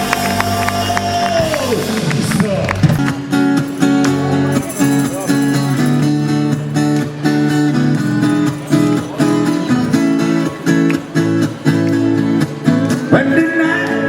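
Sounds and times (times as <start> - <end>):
rock band playing: 0.0 - 13.2
strummed guitars: 0.0 - 14.0.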